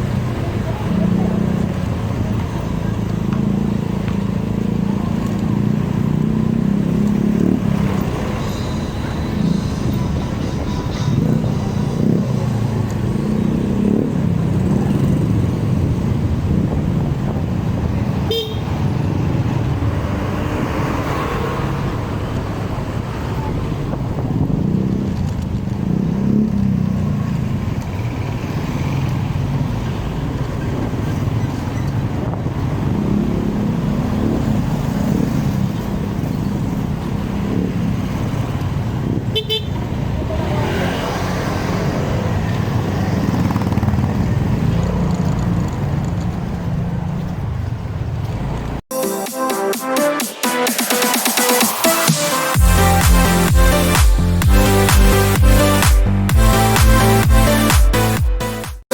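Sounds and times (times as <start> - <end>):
motorcycle engine and wind rumble: 0.0 - 48.8
horn toots: 7.4 - 13.2, 18.3 - 18.8, 39.2 - 41.0, 48.9 - 58.9.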